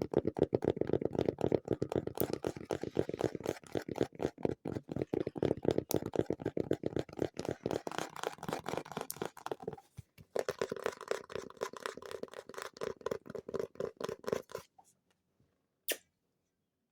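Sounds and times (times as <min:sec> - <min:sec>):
fast fingertip tapping: 0:00.0 - 0:09.6.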